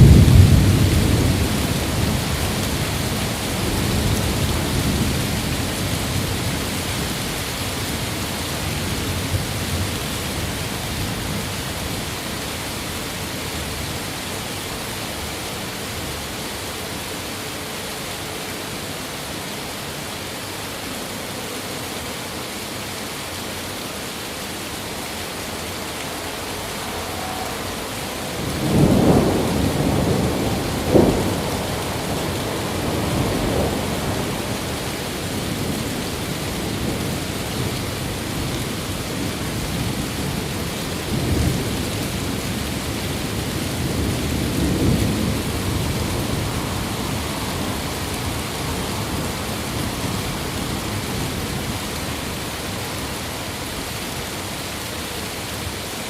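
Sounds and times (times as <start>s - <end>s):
thunder rumbling and cracking: 0.0s - 11.6s, 25.3s - 53.1s
rain hissing: 0.0s - 56.0s.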